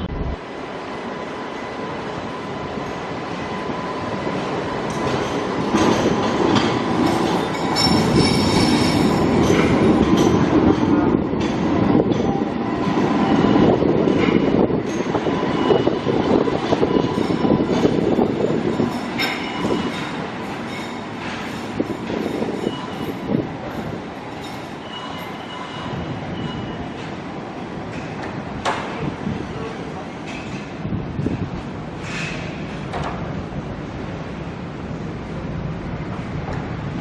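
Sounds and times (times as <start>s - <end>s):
train wheels clattering: 4.3s - 29.1s
high-pitched wheel squeal: 24.8s - 27.0s.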